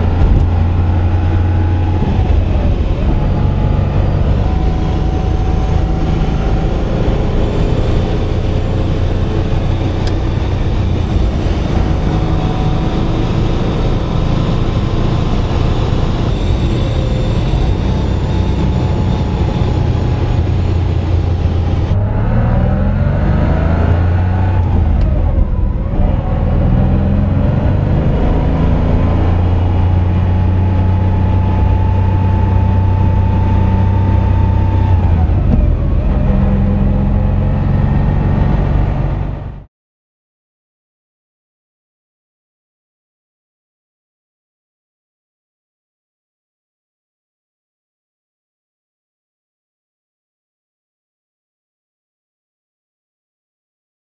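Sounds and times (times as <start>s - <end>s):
car engine from inside cabin: 0.0s - 39.6s.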